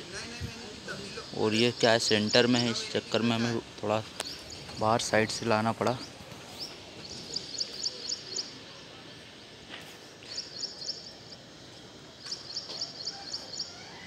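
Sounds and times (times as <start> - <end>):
faint background noise: 0.0 - 14.0
small bird chirping: 6.0 - 8.6, 10.2 - 11.4, 12.2 - 14.0.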